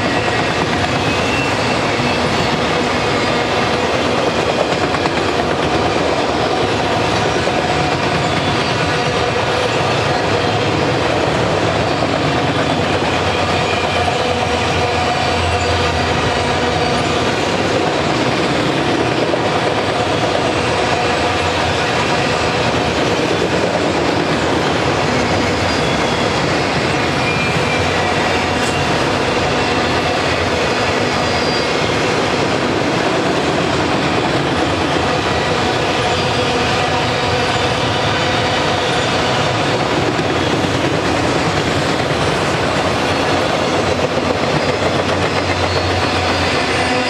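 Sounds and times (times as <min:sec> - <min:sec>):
faint high wheel squeals: 0:00.0 - 0:03.9, 0:23.8 - 0:32.2, 0:42.2 - 0:47.0
clickety-clack over rail joints: 0:00.0 - 0:47.0
train wheels rumbling on rail: 0:00.0 - 0:47.0.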